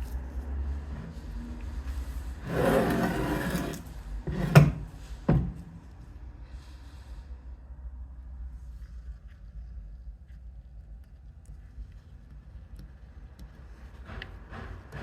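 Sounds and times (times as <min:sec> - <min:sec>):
rough scraping rub: 0:00.0 - 0:05.2.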